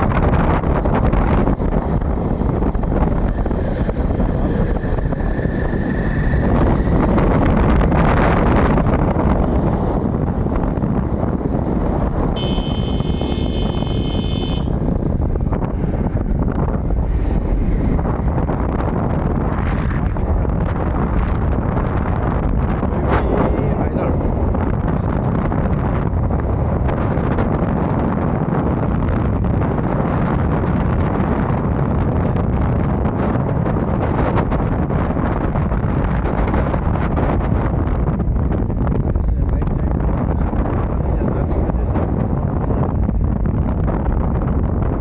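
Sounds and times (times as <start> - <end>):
road noise: 0.0 - 45.0
wind buffeting microphone: 0.0 - 45.0
motorbike engine running: 5.3 - 16.4
high steady tone: 12.4 - 14.8.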